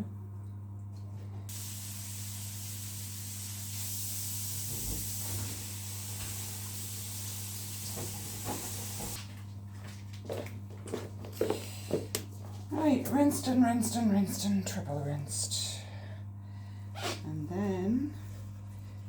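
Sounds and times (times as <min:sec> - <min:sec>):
water running from a tap: 0:01.5 - 0:09.2.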